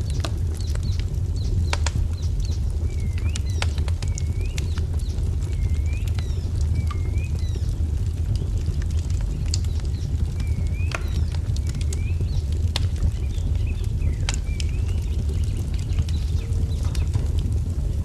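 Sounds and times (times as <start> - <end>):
wood fire crackling: 0.0 - 18.0
bird chirping: 9.6 - 17.2.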